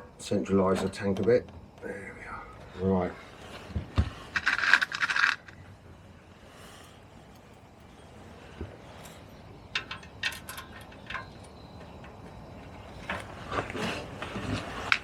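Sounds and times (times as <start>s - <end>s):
metal tools clinking: 8.9s - 12.3s.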